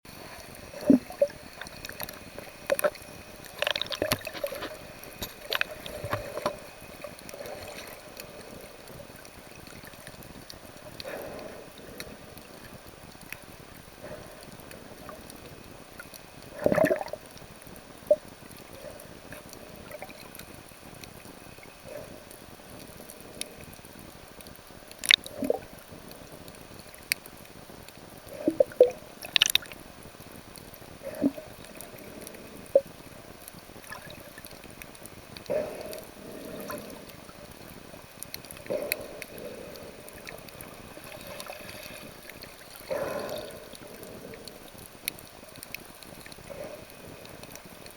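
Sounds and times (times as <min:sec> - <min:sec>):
sea water gurgling and sloshing: 0:00.1 - 0:47.9
bubbly bursts: 0:16.6 - 0:17.2, 0:25.0 - 0:25.7, 0:28.4 - 0:29.8.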